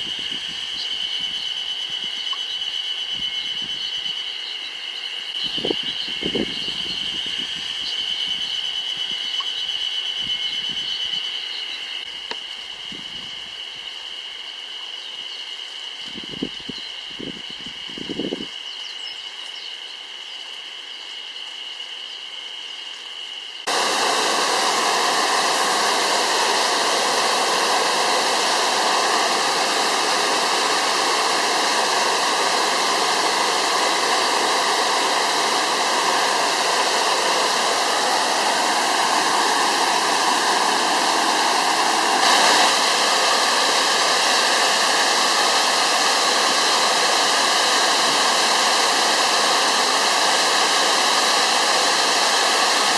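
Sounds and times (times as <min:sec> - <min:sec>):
waterfall rushing: 0:23.7 - 0:52.9.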